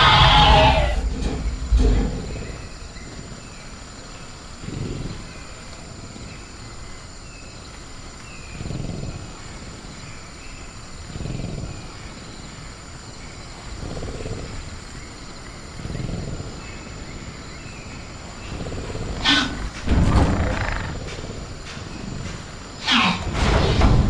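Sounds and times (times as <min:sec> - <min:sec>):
crickets droning: 0:00.0 - 0:24.0
creature growling low: 0:18.7 - 0:21.4.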